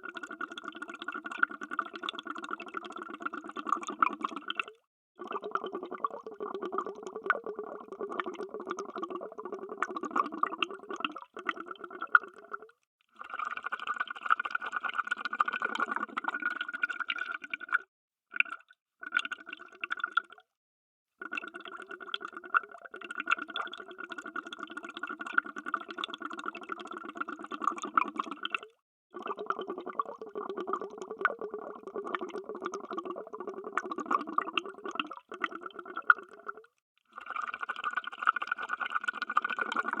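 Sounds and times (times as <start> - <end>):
underwater bubbling: 0.0 - 12.7, 21.3 - 38.2, 38.8 - 40.0.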